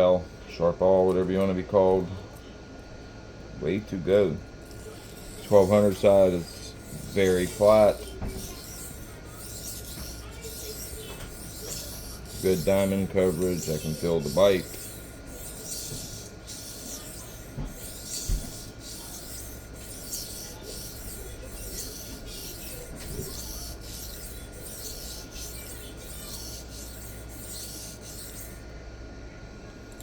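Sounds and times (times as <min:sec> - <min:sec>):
knife scraping on sharpening plate: 0:04.7 - 0:28.6.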